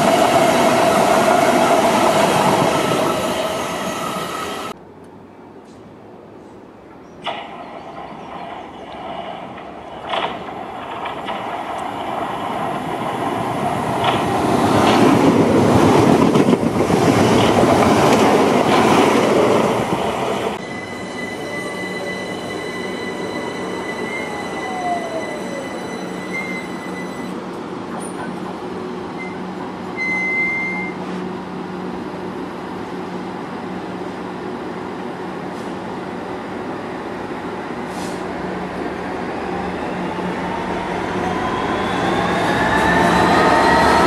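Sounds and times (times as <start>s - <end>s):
electric train humming and whining: 0.0s - 44.0s
train wheels rattling on rails: 7.2s - 28.5s.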